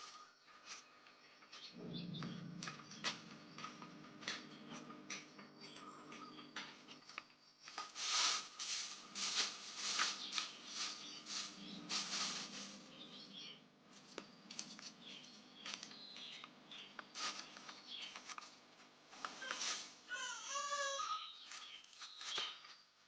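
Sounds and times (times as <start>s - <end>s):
low steady hum: 1.8s - 7.1s, 8.0s - 20.4s
rustling of things handled: 6.8s - 23.0s.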